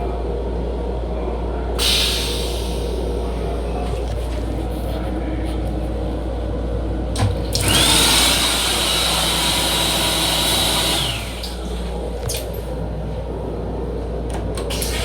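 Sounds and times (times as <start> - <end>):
low hum of railcar: 0.0 - 7.8, 11.0 - 15.0
vacuum toilet flushing: 1.8 - 3.0, 7.2 - 12.4, 14.6 - 15.0.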